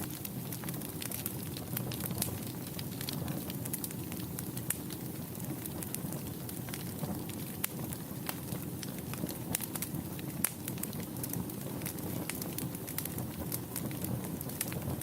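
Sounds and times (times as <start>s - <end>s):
burning wood crackling and popping: 0.0s - 15.0s
low rumble of flames: 0.0s - 15.0s.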